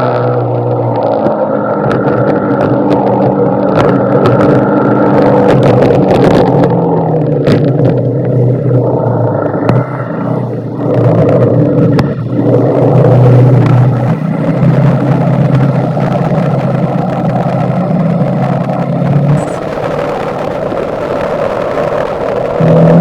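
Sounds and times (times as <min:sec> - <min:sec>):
motorcycle engine running: 0:00.0 - 0:23.0
wind and road noise: 0:00.0 - 0:23.0.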